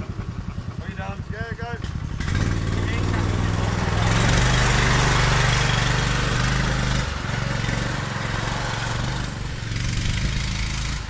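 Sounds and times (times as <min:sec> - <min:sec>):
buggy engine running: 0:00.0 - 0:11.0.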